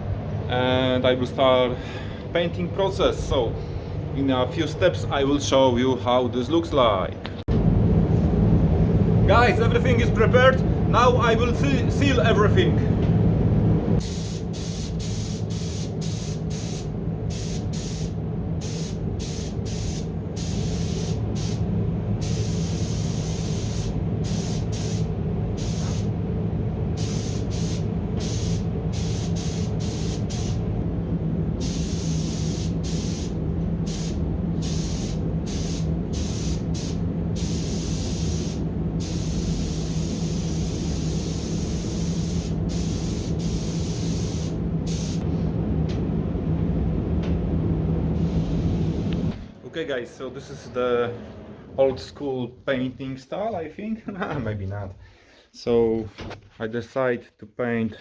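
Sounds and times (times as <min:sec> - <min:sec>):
spray booth heating hum: 0:07.2 - 0:54.4
paint spray gun hissing: 0:14.0 - 0:26.1, 0:27.0 - 0:30.8, 0:31.6 - 0:45.2, 0:48.2 - 0:49.3.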